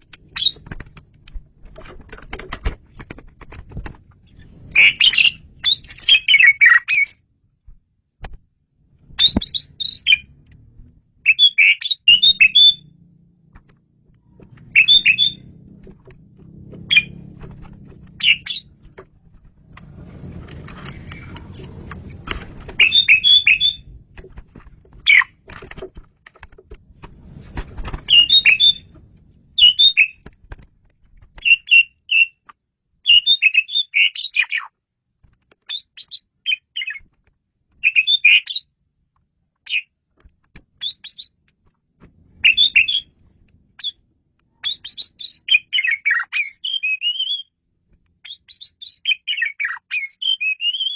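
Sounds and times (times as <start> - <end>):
starling whistling and chirping: 4.7 - 7.2, 9.2 - 10.3, 11.3 - 12.9, 14.7 - 15.5, 16.8 - 17.2, 18.2 - 18.7, 22.8 - 23.9, 28.1 - 28.9, 29.6 - 30.2, 33.1 - 34.7, 37.8 - 38.6, 40.8 - 41.3, 42.4 - 43.1, 44.6 - 47.5, 48.2 - 50.9.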